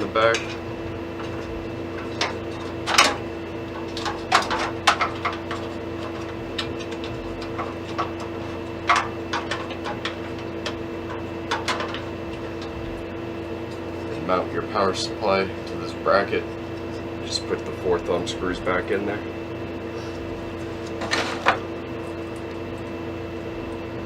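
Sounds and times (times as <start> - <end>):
steady hum: 0.0 - 24.0
metal computer case parts clicking: 1.2 - 12.1.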